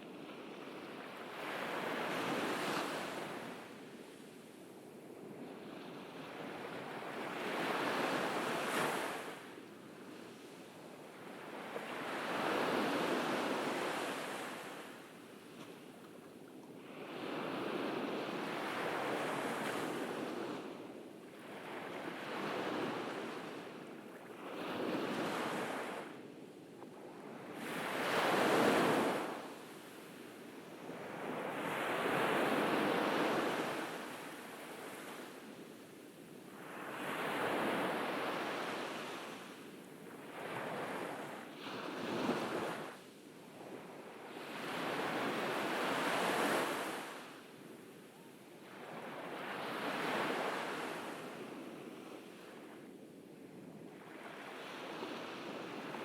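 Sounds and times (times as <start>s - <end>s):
ocean waves breaking on a beach: 0.0s - 56.0s.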